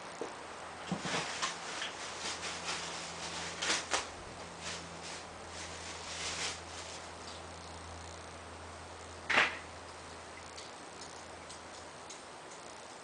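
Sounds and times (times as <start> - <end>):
steady low hum: 0.0 - 13.0
light knocks and rustles: 0.2 - 7.4.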